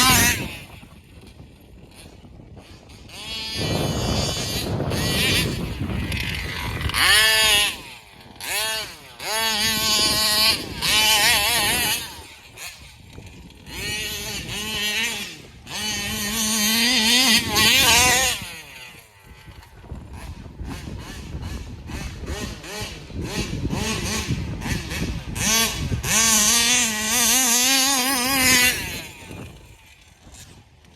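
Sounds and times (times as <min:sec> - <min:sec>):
two-stroke engine revving: 0:00.0 - 0:30.9.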